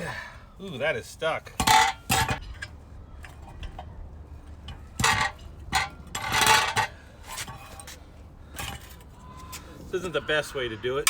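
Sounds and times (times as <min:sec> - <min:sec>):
ringing metal clatter: 0:01.6 - 0:03.9, 0:04.5 - 0:07.9.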